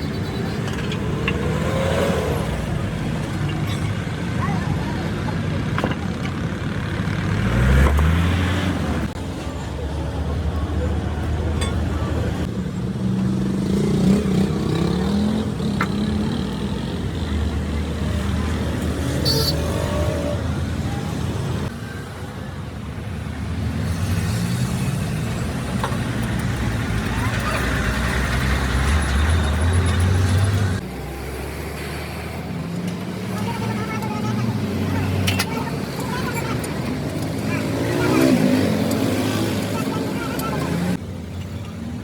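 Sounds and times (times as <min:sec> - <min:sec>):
truck engine revving: 0:06.6 - 0:09.2, 0:13.3 - 0:21.7, 0:24.0 - 0:41.0.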